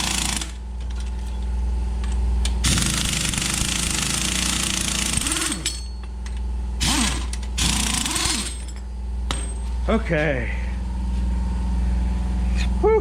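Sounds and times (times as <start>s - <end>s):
steady low hum: 0.0s - 13.0s
impact wrench hammering: 2.0s - 9.7s.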